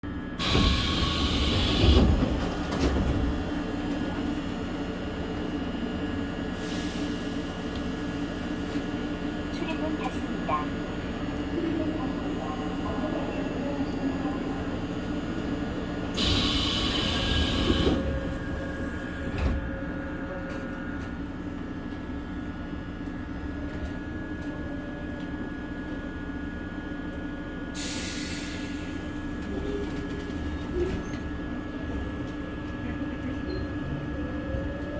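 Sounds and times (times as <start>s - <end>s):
electric train rumbling: 0.1s - 34.9s.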